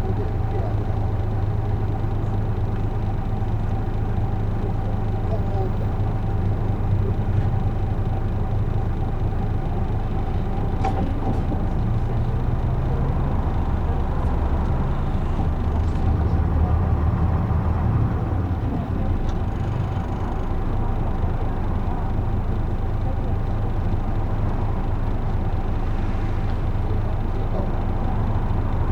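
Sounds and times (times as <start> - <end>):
bus diesel engine rumble: 0.0 - 28.9.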